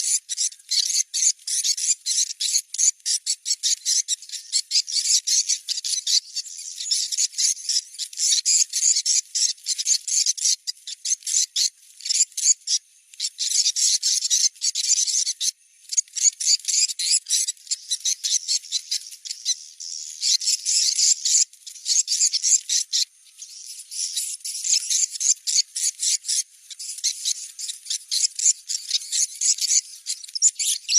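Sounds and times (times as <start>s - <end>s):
swiftlets twittering chirps: 13.3s - 30.9s.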